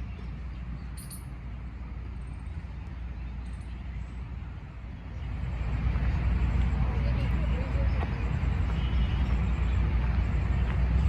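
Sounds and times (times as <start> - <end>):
high bird chirps: 0.0 - 1.3.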